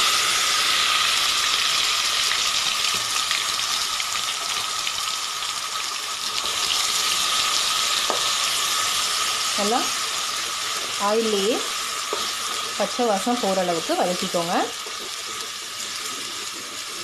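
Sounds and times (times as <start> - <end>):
paste sizzling in hot oil: 0.0 - 17.0
wooden spoon stirring: 10.6 - 17.0.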